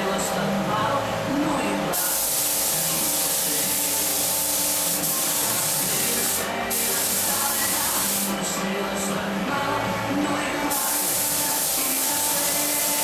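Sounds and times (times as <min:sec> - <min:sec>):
music: 0:00.0 - 0:13.0
spray gun hissing: 0:02.0 - 0:08.4, 0:10.7 - 0:13.0.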